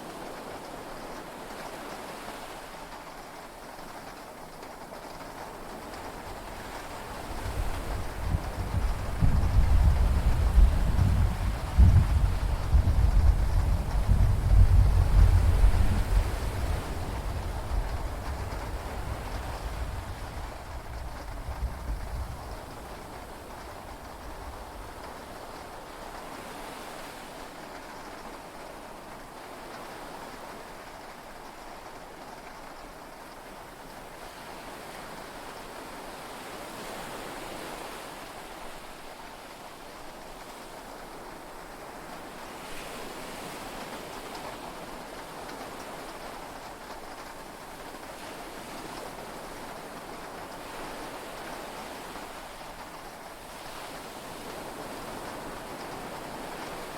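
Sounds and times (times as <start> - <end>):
heavy rain: 0.0 - 26.8
low thunder rumble: 7.6 - 25.2
sea waves: 33.9 - 56.9.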